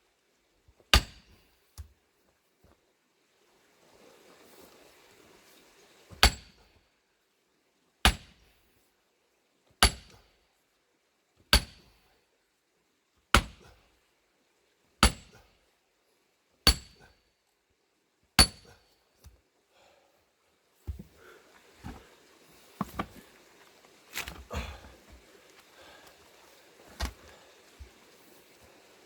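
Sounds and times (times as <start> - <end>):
sledgehammer striking steel wedge: 0.9 - 1.4, 6.2 - 6.7, 8.1 - 8.4, 9.8 - 10.2, 11.5 - 12.0, 13.4 - 13.6, 15.0 - 15.4, 16.7 - 17.2, 18.4 - 18.8.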